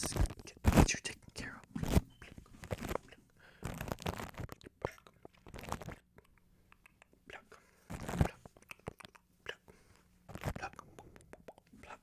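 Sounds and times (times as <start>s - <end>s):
microphone scratching: 0.0s - 1.1s, 1.7s - 4.6s, 5.4s - 6.0s, 7.9s - 8.5s, 10.3s - 10.7s
wet mouth sounds: 3.8s - 12.0s.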